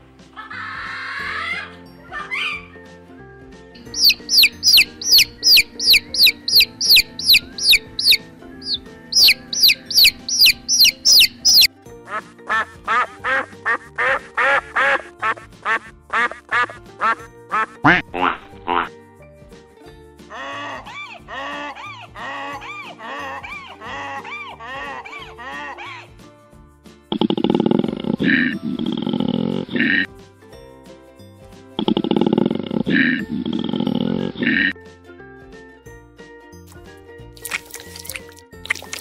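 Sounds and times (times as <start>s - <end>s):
background music: 0.0s - 39.0s
chicks peeping: 3.8s - 11.7s
geese honking: 3.8s - 11.7s.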